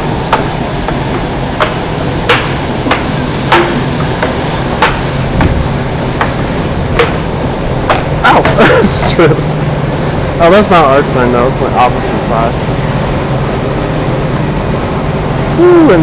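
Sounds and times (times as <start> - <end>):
subway train rumble: 0.0 - 16.0
sharp rhythmic clicks: 0.3 - 5.1.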